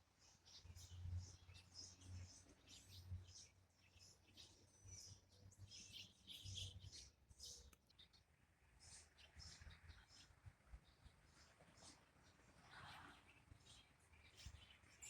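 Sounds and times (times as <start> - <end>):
faint bird chirps and calls: 0.1 - 15.0.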